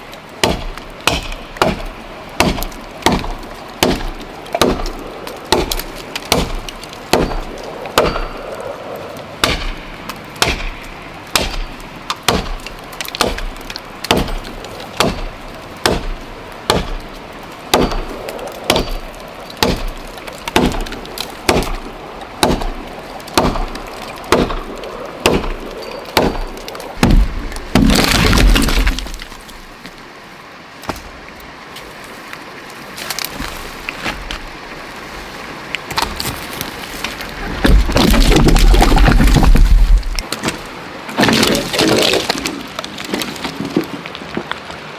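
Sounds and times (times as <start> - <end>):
axe chopping wood: 0.4 - 8.4, 9.4 - 9.8, 10.4 - 17.0, 17.7 - 19.0, 19.6 - 29.3.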